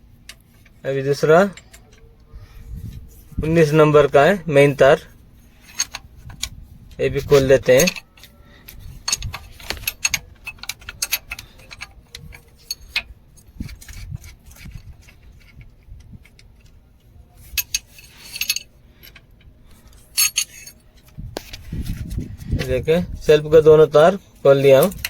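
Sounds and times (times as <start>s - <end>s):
wrench clicking on metal nut: 9.1s - 13.1s.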